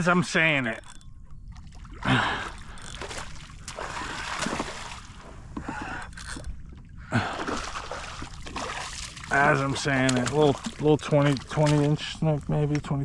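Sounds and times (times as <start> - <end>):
fish thrashing water splashes: 1.6 - 5.3, 7.2 - 12.2.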